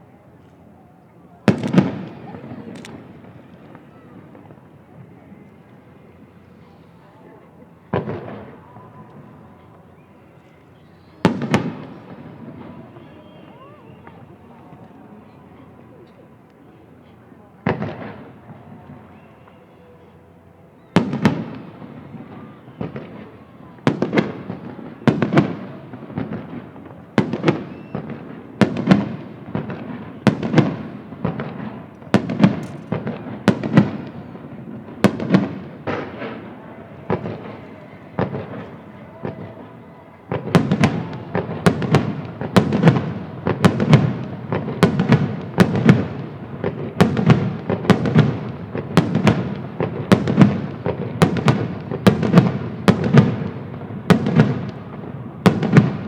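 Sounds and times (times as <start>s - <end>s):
fireworks shells bursting: 31.3s - 34.2s.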